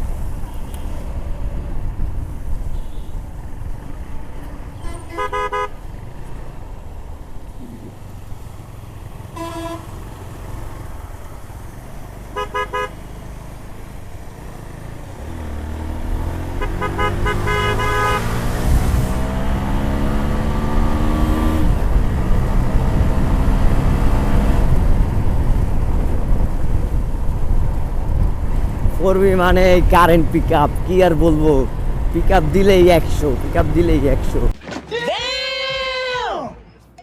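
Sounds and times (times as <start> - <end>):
multi-tone horn tooting: 4.8 - 5.8, 9.3 - 10.0, 12.4 - 13.0, 16.6 - 18.6
motorcycle engine accelerating: 13.2 - 28.8.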